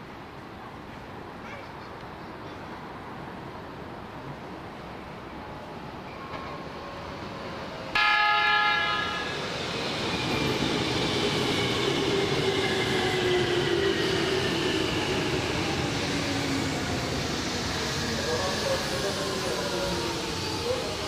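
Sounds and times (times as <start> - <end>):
train horn blast: 8.0 - 9.2.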